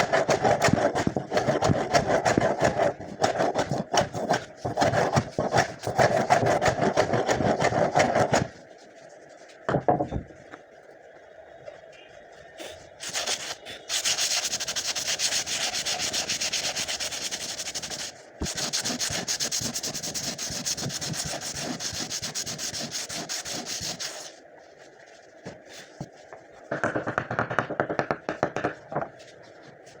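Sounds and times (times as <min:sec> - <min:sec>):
wood being sanded by hand: 0:00.0 - 0:08.6, 0:13.0 - 0:24.4.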